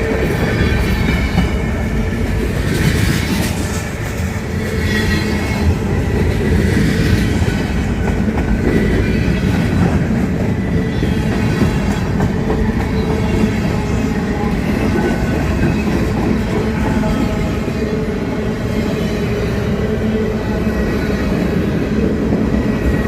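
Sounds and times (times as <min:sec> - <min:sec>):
freight train rolling past: 0:00.0 - 0:23.0.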